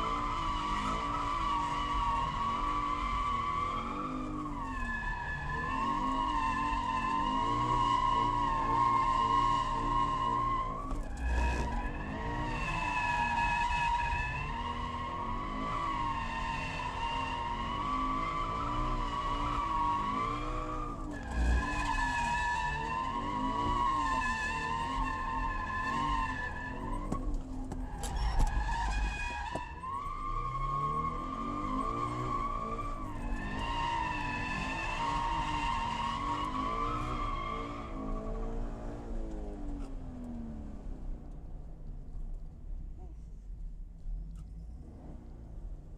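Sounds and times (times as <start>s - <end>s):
car engine at high revs: 0.0s - 42.4s, 44.2s - 45.9s.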